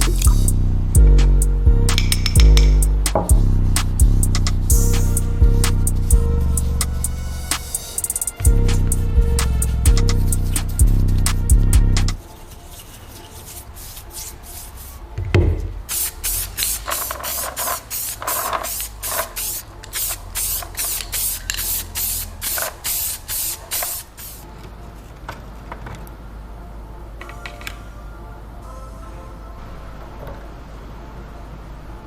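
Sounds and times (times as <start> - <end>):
aerosol spray hissing: 15.9 - 24.4.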